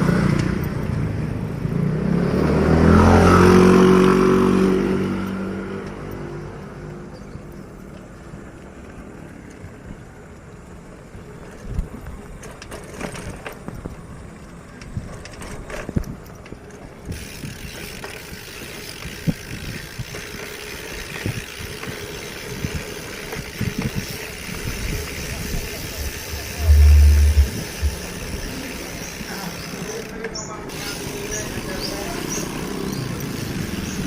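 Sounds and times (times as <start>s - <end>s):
bicycle tyres rumbling on road: 0.0s - 34.0s
bike rattling clicks and knocks: 10.4s - 34.0s
high hiss: 24.7s - 29.5s.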